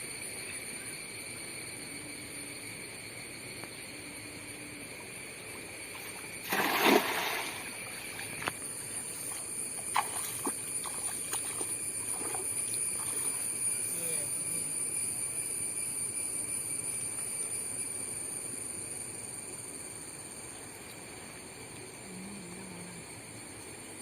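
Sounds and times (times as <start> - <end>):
insects buzzing: 0.0 - 24.0
drips and small splashes: 6.0 - 8.6, 9.3 - 13.4
net splashing into water: 6.4 - 8.4.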